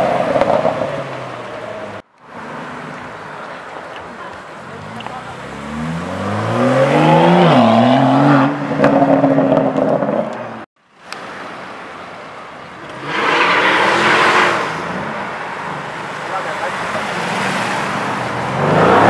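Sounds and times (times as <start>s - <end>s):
street traffic: 0.0s - 19.0s
car passing loudly: 4.7s - 10.3s, 12.9s - 19.0s
car engine accelerating past: 4.8s - 9.9s.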